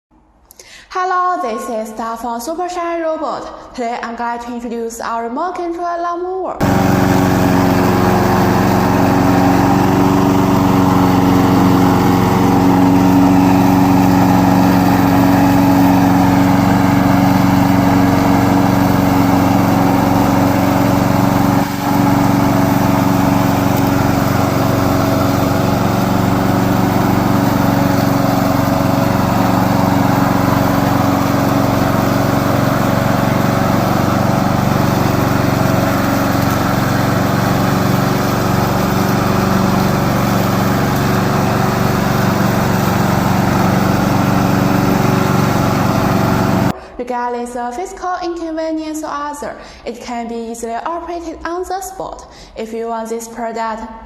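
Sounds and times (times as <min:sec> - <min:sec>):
lawn mower engine running: 0:06.6 - 0:46.7.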